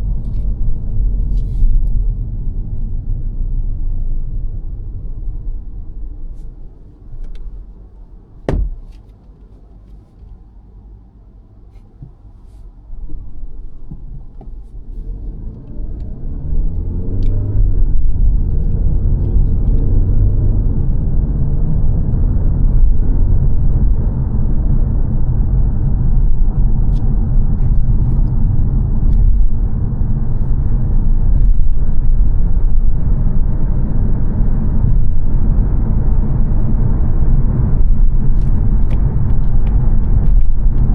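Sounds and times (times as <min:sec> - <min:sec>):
road noise: 0:00.0 - 0:40.9
sharp knock: 0:08.5 - 0:09.0
car engine accelerating: 0:14.1 - 0:40.9.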